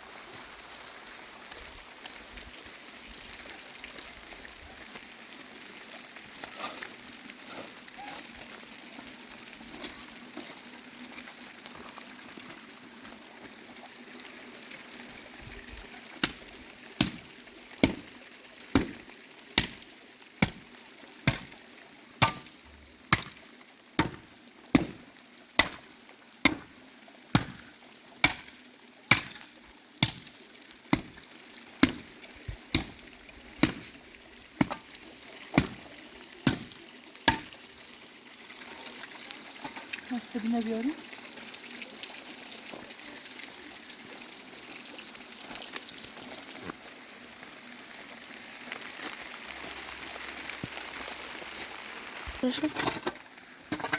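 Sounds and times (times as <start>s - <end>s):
rain hissing: 0.0s - 42.0s, 42.6s - 53.9s.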